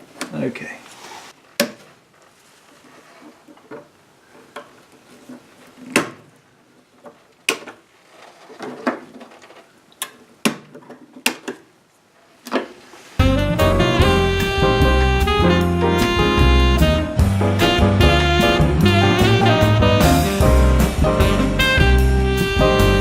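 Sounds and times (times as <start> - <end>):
jazz music with saxophone and drums: 13.2 - 23.0.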